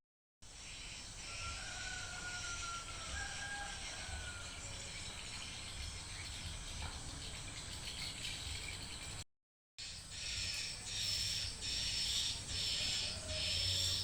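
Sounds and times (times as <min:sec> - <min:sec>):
outdoor background hiss: 0:00.4 - 0:09.2, 0:09.8 - 0:14.0
rooster crowing: 0:01.2 - 0:05.2, 0:12.6 - 0:14.0.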